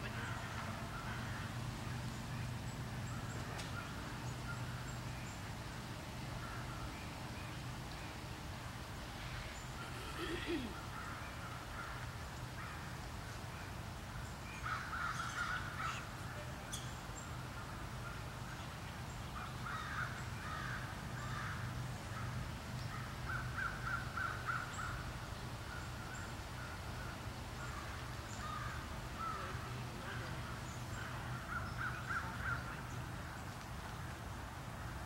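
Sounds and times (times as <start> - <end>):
birds calling: 9.2 - 12.8, 19.3 - 33.6.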